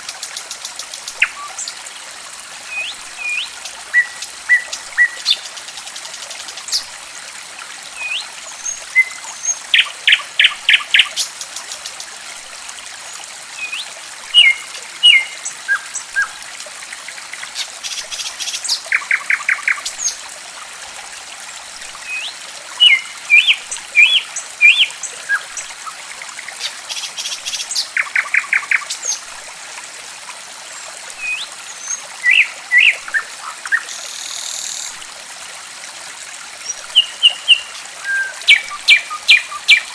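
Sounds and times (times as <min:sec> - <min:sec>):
water trickling: 0:00.0 - 0:39.9
songbird chirping: 0:13.6 - 0:16.3, 0:22.1 - 0:25.4, 0:36.6 - 0:39.9.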